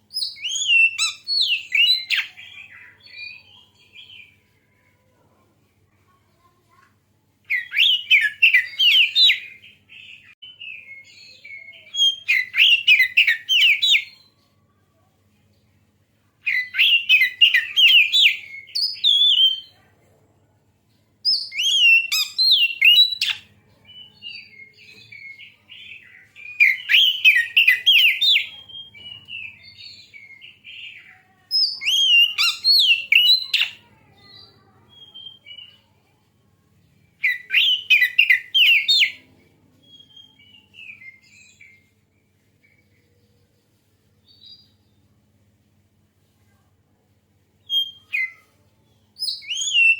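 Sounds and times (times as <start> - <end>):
bird singing rapid chirps: 0.0 - 4.4, 7.5 - 14.2, 16.4 - 19.7, 21.2 - 33.9, 37.1 - 39.2, 49.2 - 49.9
soft bird twittering: 0.0 - 5.1, 21.2 - 36.0, 47.6 - 49.9.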